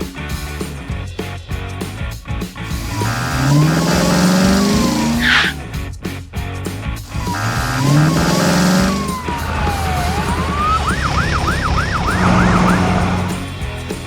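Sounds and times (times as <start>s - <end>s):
upbeat cartoon music: 0.0s - 14.0s
siren-like sound effect: 7.2s - 13.4s.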